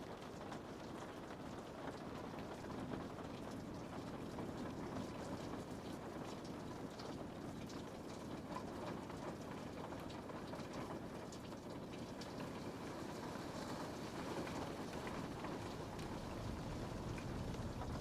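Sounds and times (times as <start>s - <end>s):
rain on a window: 0.0s - 18.0s.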